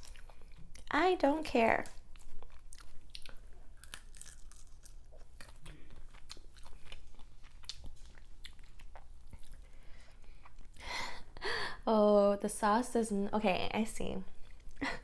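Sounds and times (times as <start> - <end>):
chewing and biting shrimp: 0.0 - 0.9, 1.9 - 10.8.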